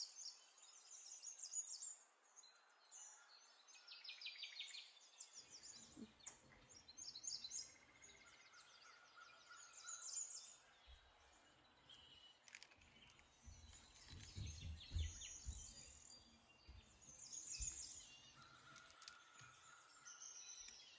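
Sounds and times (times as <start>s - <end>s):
birdsong chirps and trills: 0.0s - 20.9s
soft low thumps: 13.5s - 17.0s.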